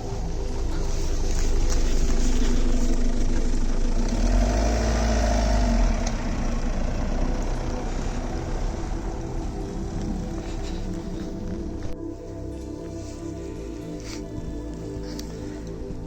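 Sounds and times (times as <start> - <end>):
pickup engine driving: 0.0 - 16.0.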